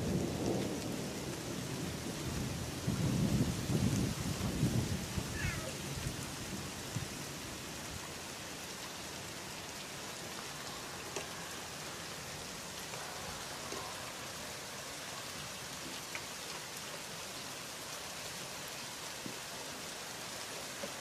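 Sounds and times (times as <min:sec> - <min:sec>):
thunder rumble: 0:00.0 - 0:07.1
heavy rain hiss: 0:00.0 - 0:21.0.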